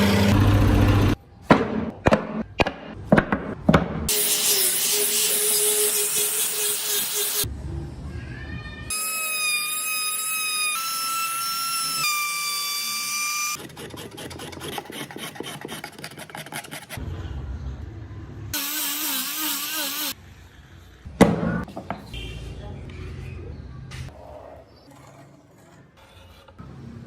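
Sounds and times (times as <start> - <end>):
grinding or sanding with ticking: 13.6 - 17.0.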